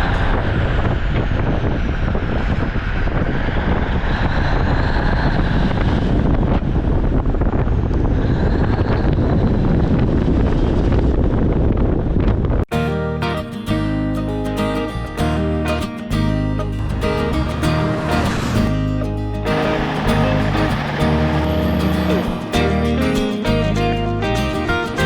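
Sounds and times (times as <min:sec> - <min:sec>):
wind noise: 0:00.0 - 0:25.0
truck engine and road rumble: 0:14.2 - 0:25.0.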